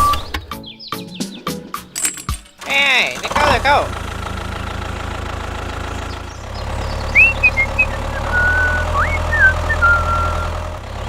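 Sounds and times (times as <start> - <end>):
small engine idling: 2.6 - 11.0.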